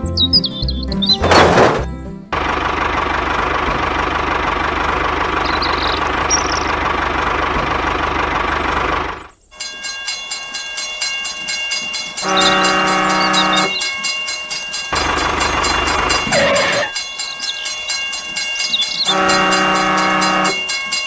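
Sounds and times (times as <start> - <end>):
noisy rumble: 1.2 - 9.4
horn blast: 12.2 - 13.8, 19.1 - 20.8.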